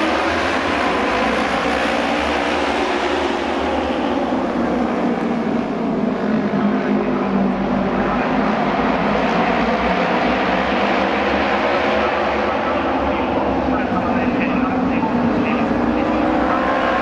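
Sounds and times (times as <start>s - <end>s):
racing motorcycles engines drone: 0.0s - 17.0s.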